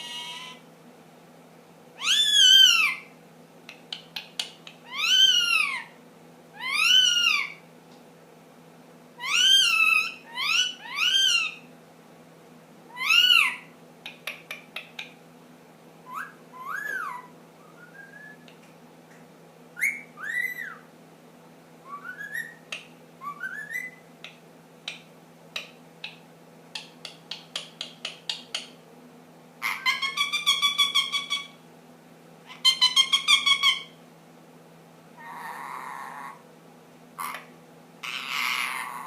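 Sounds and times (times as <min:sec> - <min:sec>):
parakeet whistling: 0:02.0 - 0:03.1, 0:04.8 - 0:05.9, 0:06.6 - 0:07.6, 0:09.2 - 0:11.6, 0:12.9 - 0:13.7, 0:16.0 - 0:18.5, 0:19.8 - 0:20.9, 0:21.8 - 0:24.0, 0:29.6 - 0:31.6, 0:32.5 - 0:33.9.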